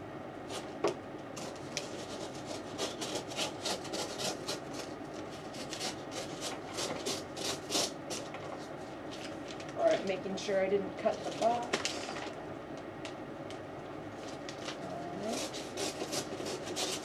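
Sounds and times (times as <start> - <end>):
blade cutting tape on cardboard: 1.4 - 4.9, 5.5 - 8.3, 15.2 - 17.0.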